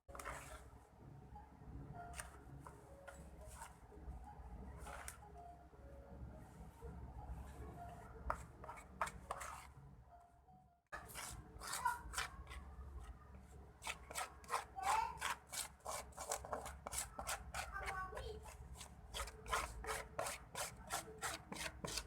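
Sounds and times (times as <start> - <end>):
utensils scraping and tapping: 0.1 - 0.7, 2.0 - 3.8, 4.8 - 5.3, 7.8 - 9.8, 11.0 - 22.0.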